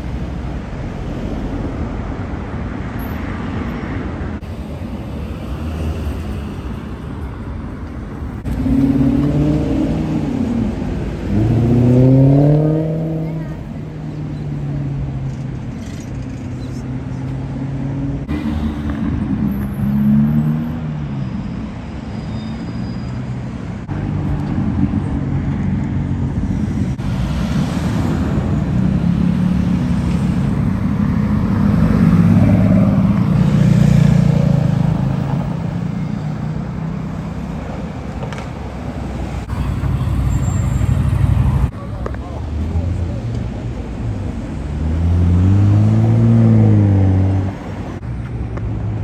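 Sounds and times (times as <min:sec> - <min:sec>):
car engines in traffic: 0:00.0 - 0:49.0
road noise: 0:00.0 - 0:49.0
engine revving: 0:08.4 - 0:13.7, 0:44.6 - 0:47.8.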